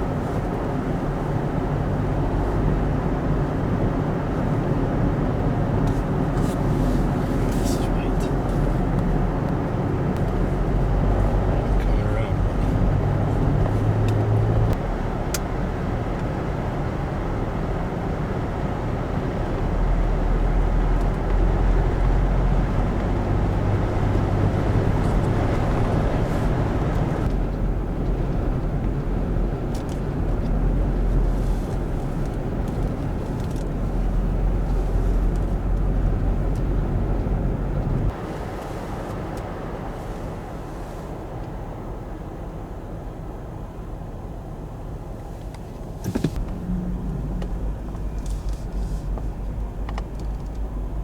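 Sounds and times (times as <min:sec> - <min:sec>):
vehicle engine and road noise: 0:00.0 - 0:51.0.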